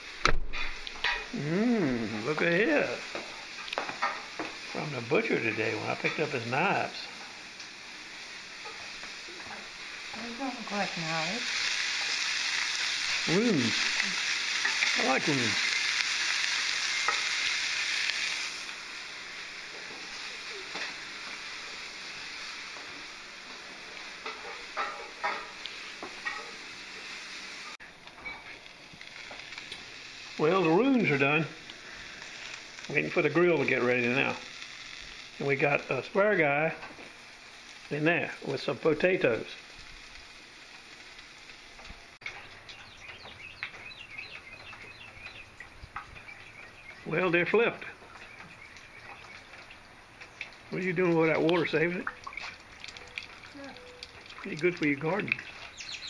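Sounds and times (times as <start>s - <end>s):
faint steady hiss: 0.0s - 56.0s
mushrooms sizzling in a frying pan: 0.0s - 56.0s
birds chirping: 42.2s - 56.0s.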